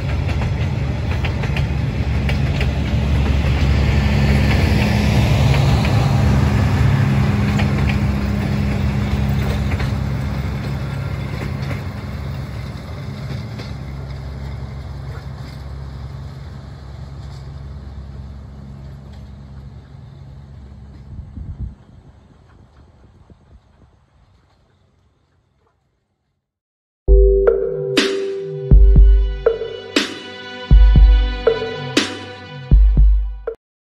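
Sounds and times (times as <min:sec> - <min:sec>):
wheels clicking over rail joints: 0:00.0 - 0:21.3
train rumbling: 0:00.0 - 0:24.8, 0:28.6 - 0:33.1.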